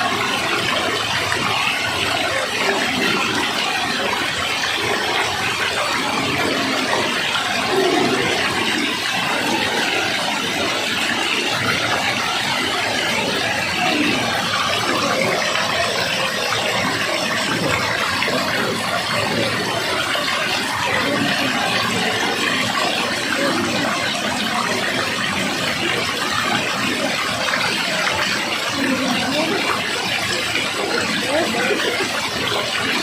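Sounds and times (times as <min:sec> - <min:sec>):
rushing water: 0:00.0 - 0:33.0.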